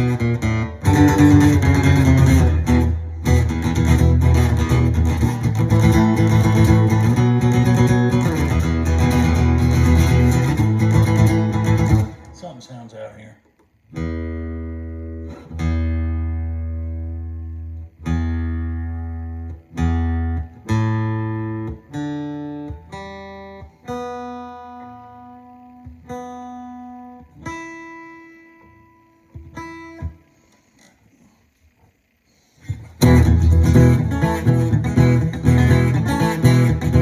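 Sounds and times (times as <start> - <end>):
guitar plucked notes and chords: 0.0 - 12.5, 13.7 - 30.6, 32.6 - 37.0.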